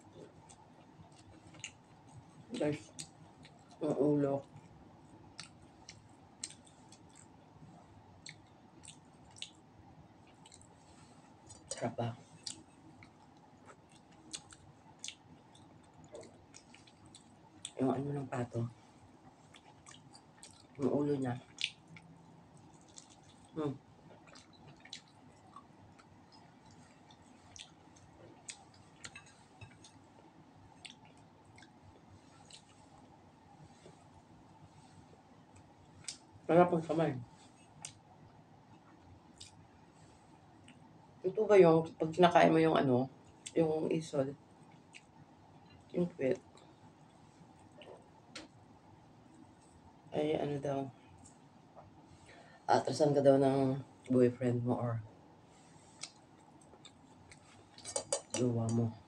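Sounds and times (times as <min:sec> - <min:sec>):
wet chewing clicks and smacks: 0:00.0 - 0:03.8, 0:04.4 - 0:07.4, 0:08.2 - 0:17.8, 0:19.2 - 0:20.8, 0:21.4 - 0:33.1, 0:37.7 - 0:39.7, 0:44.6 - 0:48.6, 0:55.9 - 0:58.5.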